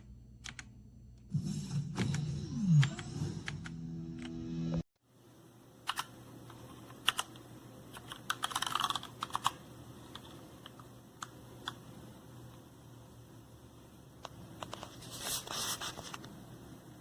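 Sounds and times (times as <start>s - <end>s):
mechanical keyboard typing: 5.9s - 6.1s, 6.9s - 11.8s.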